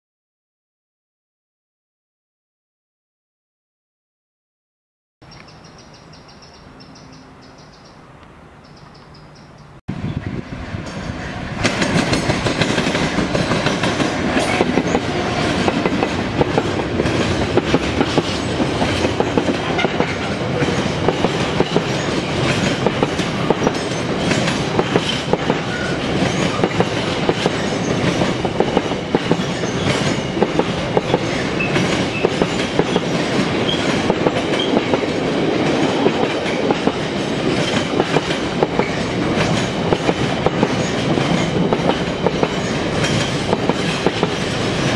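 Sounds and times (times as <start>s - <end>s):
diesel locomotive passing: 5.4s - 44.9s
wheels clacking over rail joints: 10.7s - 44.9s.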